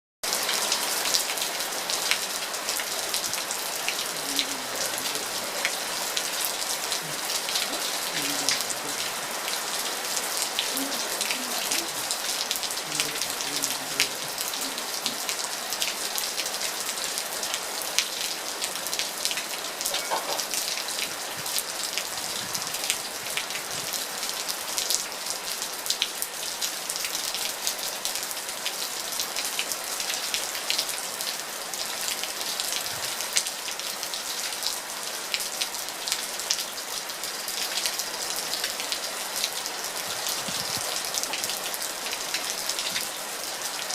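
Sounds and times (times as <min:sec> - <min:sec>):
steady rain hiss: 0:00.2 - 0:43.9
drops splattering from eaves: 0:19.8 - 0:21.1.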